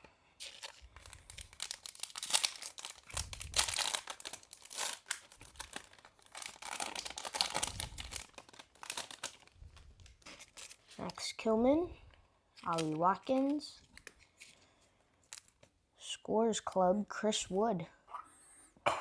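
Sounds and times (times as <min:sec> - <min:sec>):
thin plastic crinkling: 0:00.4 - 0:11.4, 0:12.5 - 0:15.8.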